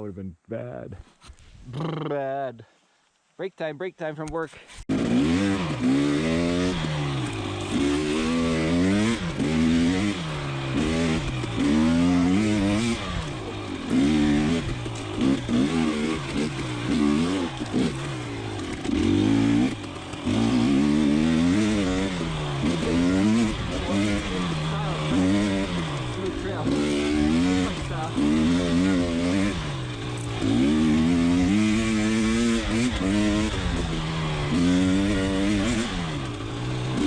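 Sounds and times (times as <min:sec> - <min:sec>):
two-stroke engine revving: 0:04.9 - 0:37.0.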